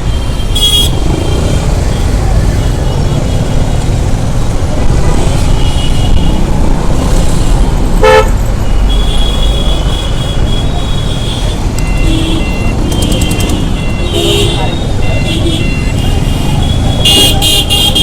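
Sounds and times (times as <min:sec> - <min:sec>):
wind and engines rumbling: 0:00.0 - 0:18.0
vehicle horn honk: 0:08.0 - 0:08.3, 0:08.9 - 0:18.0.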